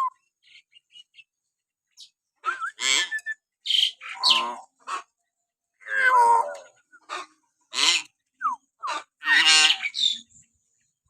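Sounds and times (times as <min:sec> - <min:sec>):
myna harsh calls and whistles: 0:02.0 - 0:04.7.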